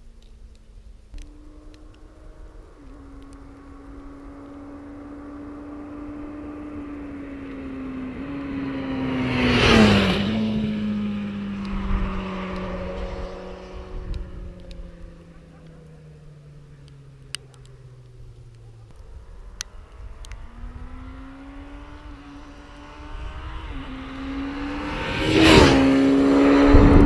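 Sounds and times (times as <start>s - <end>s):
motorcycle riding past: 1.2s - 27.0s.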